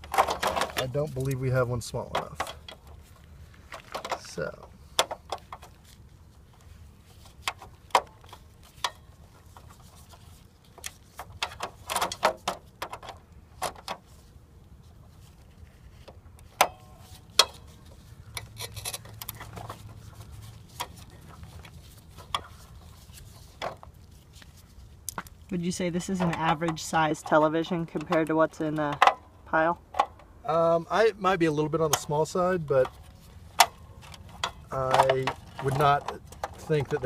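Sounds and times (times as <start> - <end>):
hand tool clicking and scraping: 16.0 - 25.3.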